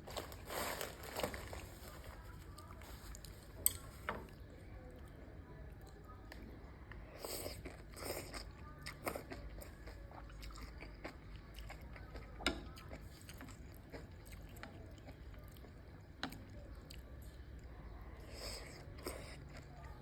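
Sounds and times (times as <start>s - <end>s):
person chewing: 7.2s - 15.8s.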